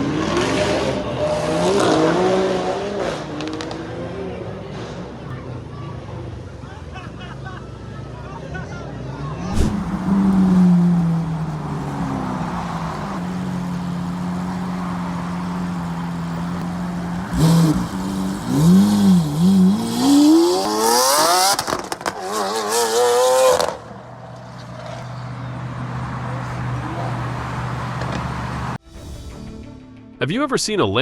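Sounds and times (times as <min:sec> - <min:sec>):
car engine revving: 0:09.4 - 0:28.8.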